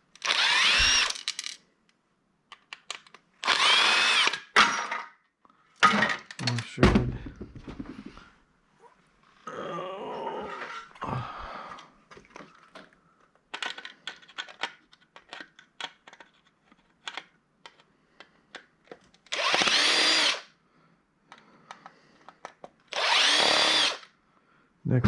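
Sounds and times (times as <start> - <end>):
clicks and rattles of parts: 0.1 - 1.7, 2.4 - 3.6, 5.8 - 6.8, 12.2 - 19.7, 21.3 - 22.9
power drill spinning: 0.2 - 1.4, 3.4 - 4.5, 19.3 - 20.5, 22.9 - 24.1.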